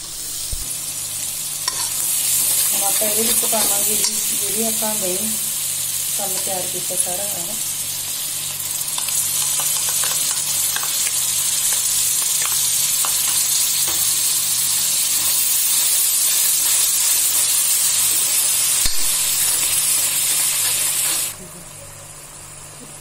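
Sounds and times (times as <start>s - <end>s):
masala sizzling in metal pan: 0.0s - 22.9s
steel ladle stirring: 1.7s - 2.0s
crackles and pops: 18.8s - 19.6s.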